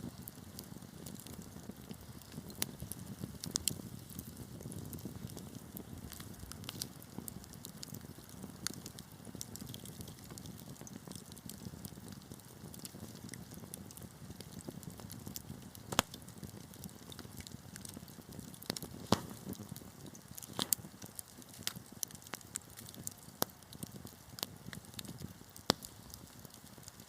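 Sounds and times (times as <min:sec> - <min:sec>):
fire crackles and pops: 0:00.0 - 0:27.0
wood fire roaring: 0:00.0 - 0:27.0.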